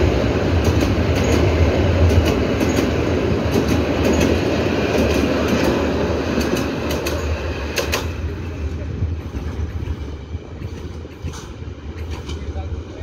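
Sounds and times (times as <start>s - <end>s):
wheels clacking over rail joints: 0.5s - 8.3s, 9.2s - 12.8s.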